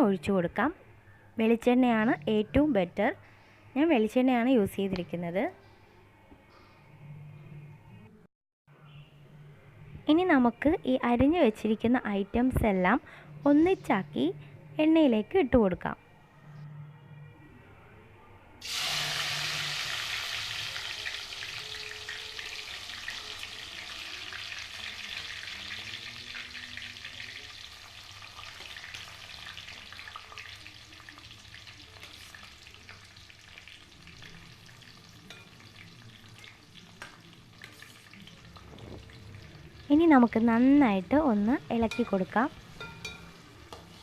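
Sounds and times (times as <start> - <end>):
vegetables sizzling in hot oil: 18.6 - 44.0.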